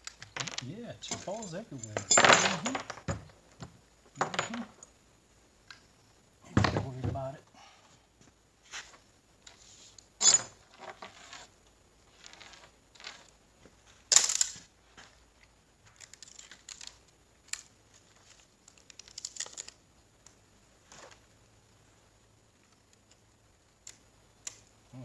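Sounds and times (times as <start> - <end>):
metal parts clicking and clattering: 0.0 - 3.4, 4.2 - 4.9, 14.0 - 14.7, 16.0 - 20.4
light rattles: 0.0 - 4.9.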